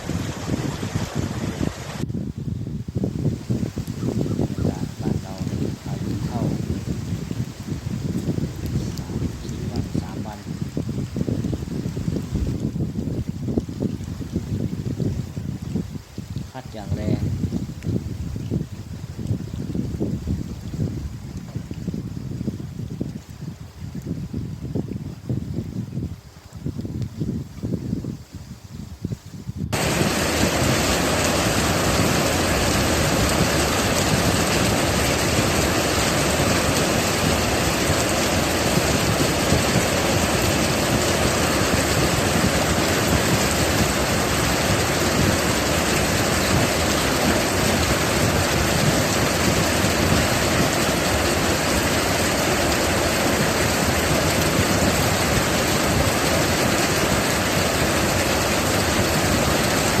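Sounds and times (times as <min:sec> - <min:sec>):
heavy rain downpour: 0:00.0 - 0:22.0, 0:29.7 - 1:00.0.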